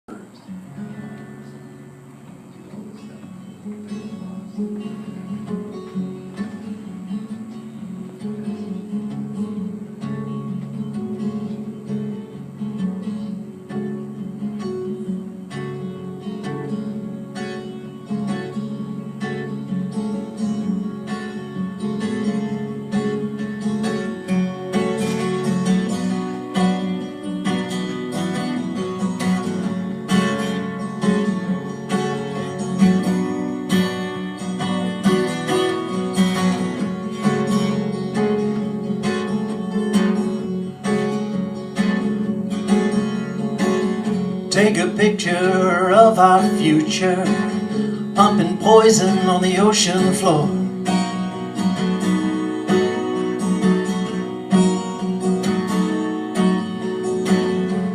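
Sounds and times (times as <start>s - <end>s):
acoustic guitar picked and strummed: 0.1s - 57.9s.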